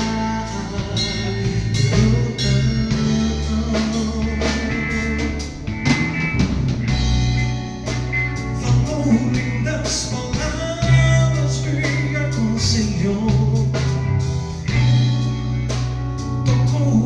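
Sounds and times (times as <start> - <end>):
person singing: 0.0 - 5.7, 8.5 - 14.2, 16.5 - 17.0
band playing gospel song: 0.0 - 17.0.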